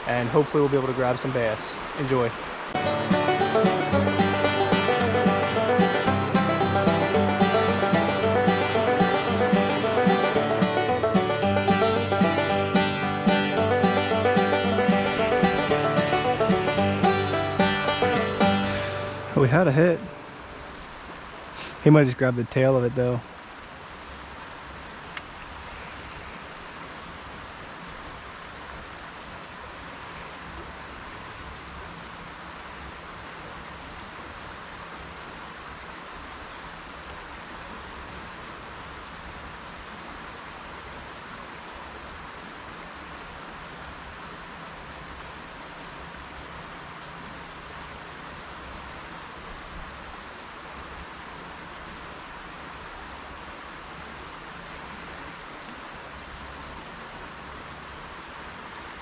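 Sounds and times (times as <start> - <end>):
flowing creek water: 0.0 - 59.0
click: 25.1 - 25.5.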